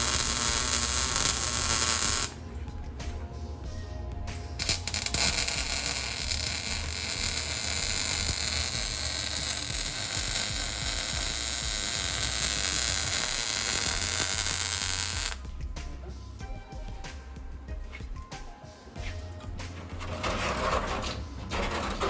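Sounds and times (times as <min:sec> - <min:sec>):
welding arc hissing: 0:00.0 - 0:02.4, 0:04.5 - 0:15.4.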